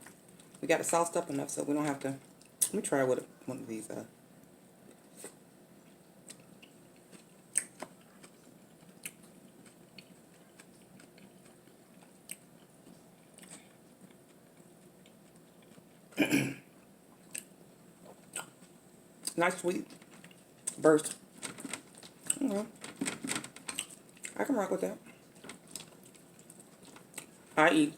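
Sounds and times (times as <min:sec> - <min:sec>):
chewing sandwich: 0:04.8 - 0:24.4, 0:25.1 - 0:27.6.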